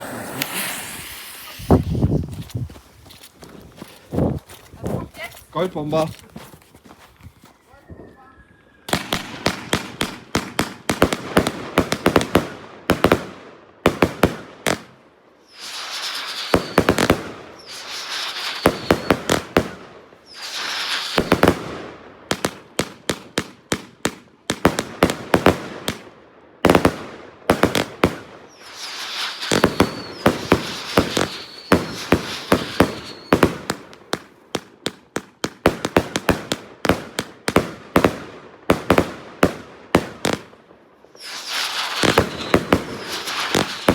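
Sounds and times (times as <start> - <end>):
firework bangs: 0.0 - 2.4, 8.9 - 26.0, 26.6 - 40.6, 41.2 - 43.9
firework hissing: 0.0 - 2.8, 15.4 - 21.6, 28.2 - 34.0, 41.2 - 43.9.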